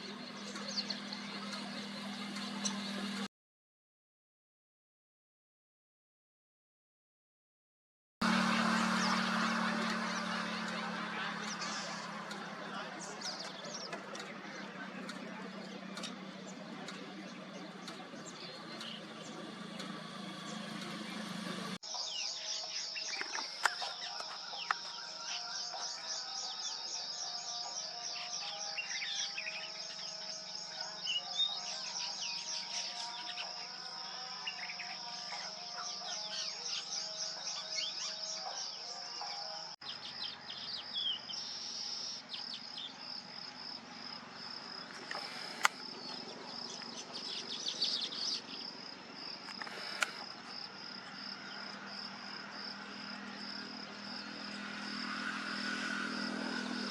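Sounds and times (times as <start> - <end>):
birds chirping and calling: 0.0 - 3.3, 8.2 - 55.4
insects buzzing: 41.3 - 56.9.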